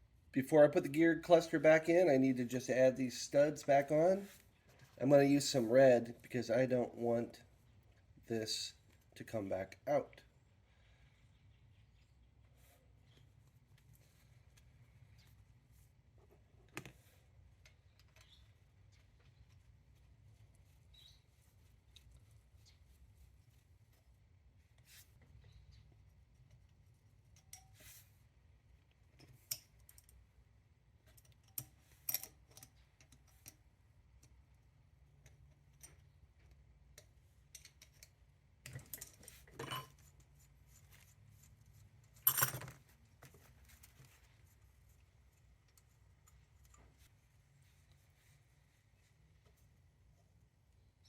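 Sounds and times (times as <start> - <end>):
metal parts clattering: 38.7 - 40.1
hand tools clinking: 38.7 - 42.9.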